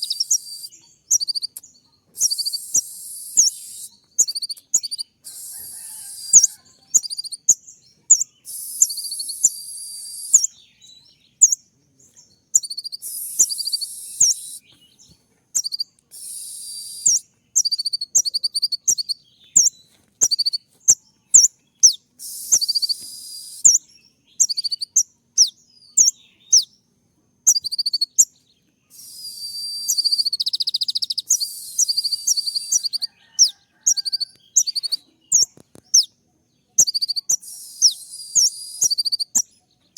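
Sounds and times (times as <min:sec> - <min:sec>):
buzzy bird trills: 0:00.0 - 0:10.6, 0:28.9 - 0:36.1
bird chirping high and sharp: 0:00.0 - 0:10.7, 0:12.5 - 0:14.8, 0:15.6 - 0:26.7, 0:27.5 - 0:39.9.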